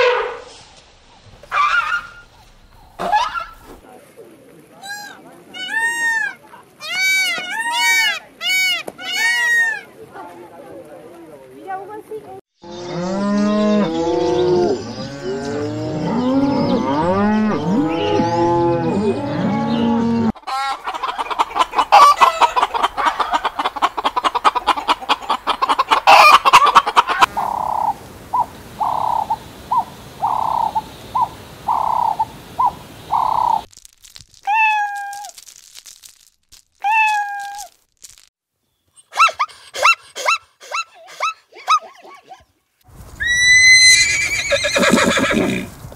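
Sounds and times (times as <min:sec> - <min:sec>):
hens clucking: 0:20.3 - 0:33.7.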